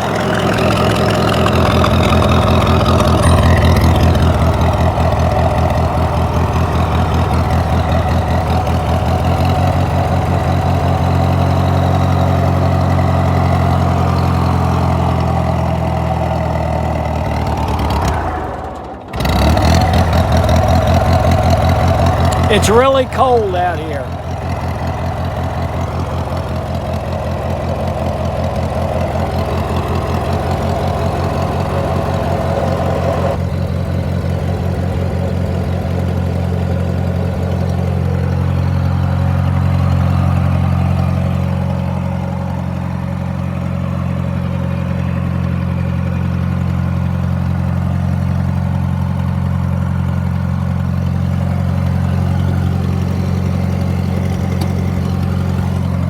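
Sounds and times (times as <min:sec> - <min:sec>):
high-pitched engine whine: 0:00.0 - 0:10.8
tractor engine idling: 0:00.0 - 0:18.0, 0:19.1 - 0:33.1, 0:34.2 - 0:56.0.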